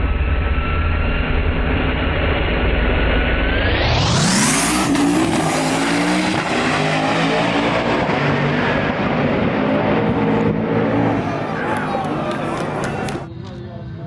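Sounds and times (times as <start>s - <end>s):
race car engines shifting gears: 4.4s - 13.3s.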